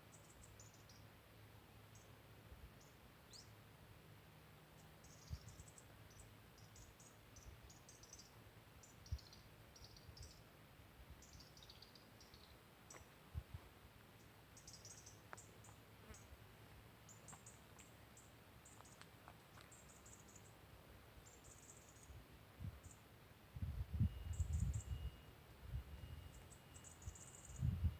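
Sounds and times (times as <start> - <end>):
small birds chirping: 0.0 - 1.1, 2.8 - 3.6, 4.6 - 10.5, 11.2 - 13.1, 14.1 - 16.4, 17.0 - 20.6, 21.2 - 22.2, 22.8 - 23.1, 24.0 - 25.2, 26.0 - 27.9.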